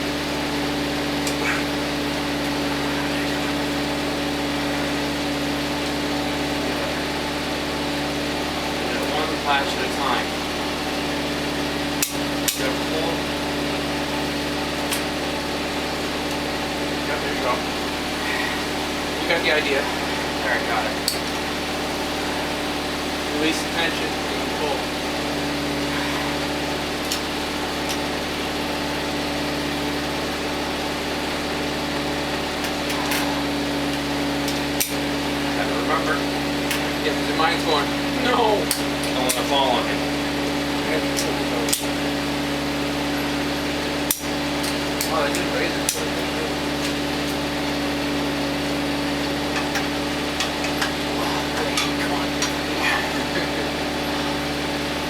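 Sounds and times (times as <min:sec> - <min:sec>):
steady machine hum: 0:00.0 - 0:55.0.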